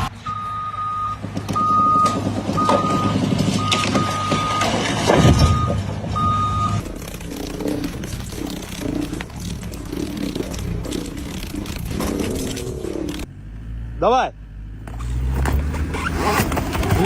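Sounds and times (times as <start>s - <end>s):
engine running: 0.0s - 17.0s
reversing alarm beeping: 0.2s - 6.9s.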